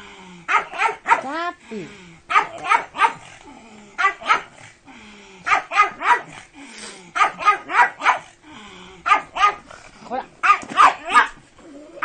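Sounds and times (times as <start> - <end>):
dog barking: 0.5 - 1.3, 2.3 - 3.3, 4.0 - 4.6, 5.5 - 6.4, 7.2 - 8.3, 9.0 - 9.6, 10.4 - 11.4.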